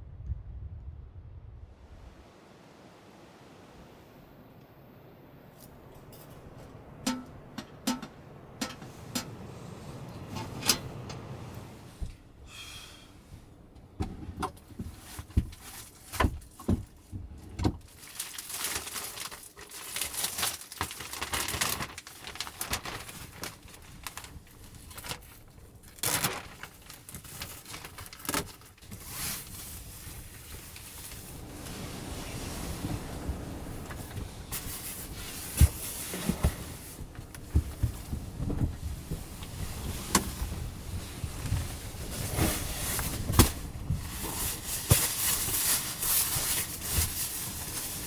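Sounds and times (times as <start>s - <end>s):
rustling: 5.6s - 48.0s
clinking: 6.0s - 11.4s.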